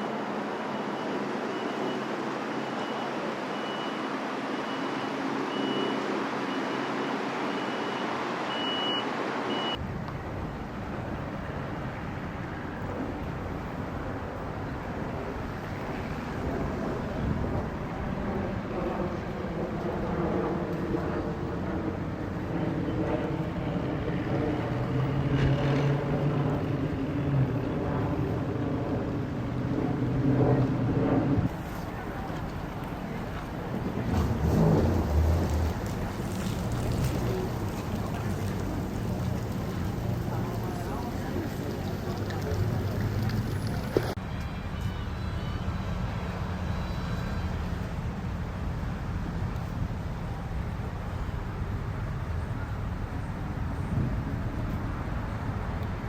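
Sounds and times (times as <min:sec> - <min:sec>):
vehicle engine noise: 0:00.0 - 0:44.6
reversing alarm beeping: 0:00.7 - 0:09.8
motorboat engines droning: 0:31.5 - 0:48.8.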